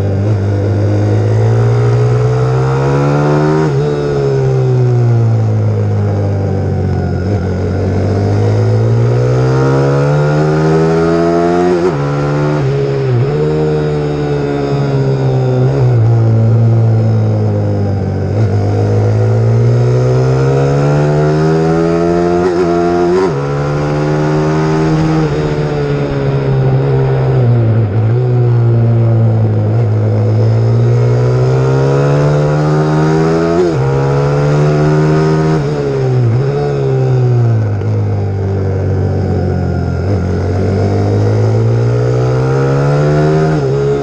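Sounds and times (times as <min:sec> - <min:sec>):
pit bike engine revving: 0:00.0 - 0:05.8, 0:07.0 - 0:38.3, 0:39.0 - 0:44.0.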